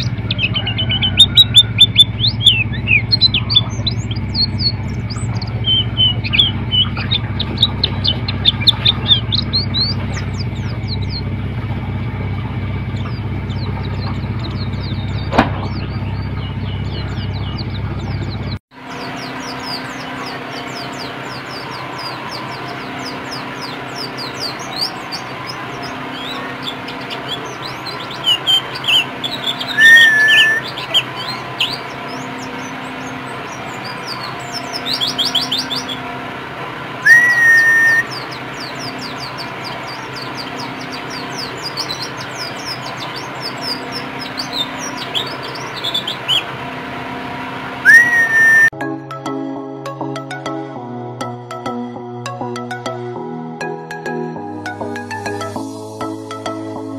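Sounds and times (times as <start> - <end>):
bird whistle rising: 0.0 - 11.2, 19.1 - 36.0, 37.0 - 46.5, 47.8 - 48.8
bird twittering song: 0.0 - 36.2, 37.0 - 46.6, 47.8 - 48.7.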